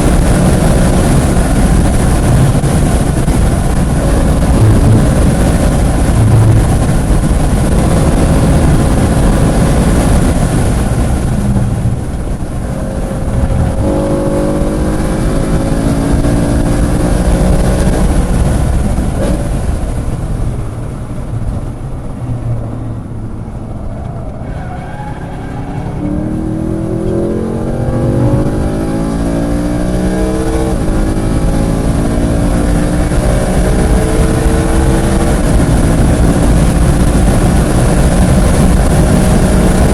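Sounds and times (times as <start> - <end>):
car engine at full throttle: 0.0 - 39.9.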